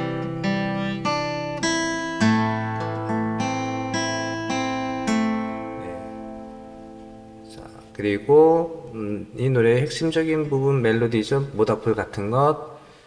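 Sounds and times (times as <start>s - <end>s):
fingerpicked acoustic guitar: 0.0s - 8.2s.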